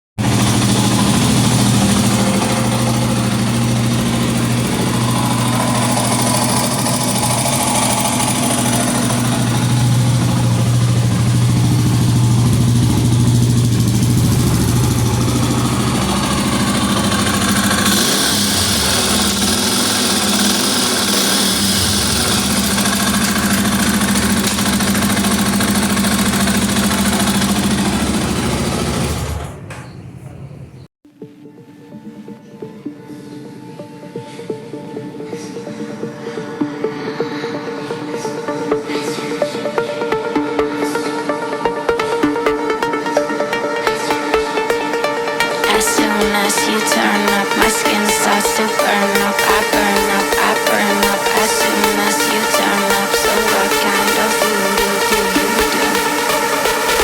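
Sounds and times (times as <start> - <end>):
motorcycle engine running: 0.2 - 29.6, 44.0 - 57.0.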